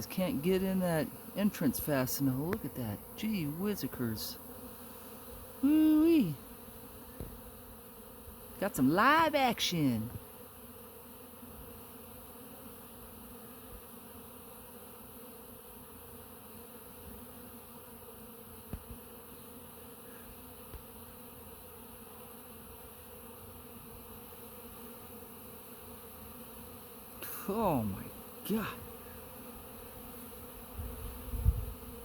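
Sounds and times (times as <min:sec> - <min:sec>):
bees buzzing: 0:00.0 - 0:32.0.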